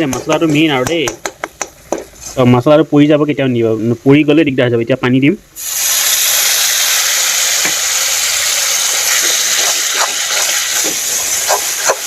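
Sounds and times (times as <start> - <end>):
paste sizzling in hot oil: 5.6 - 12.0
stirring scrapes: 9.0 - 12.0.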